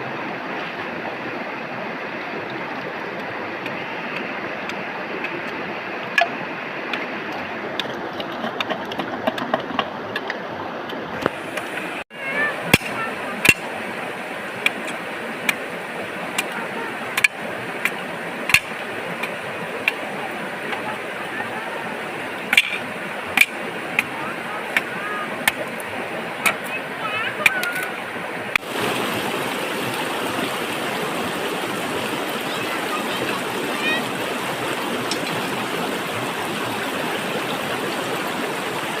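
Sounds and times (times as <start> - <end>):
flowing water rushing: 0.0 - 39.0.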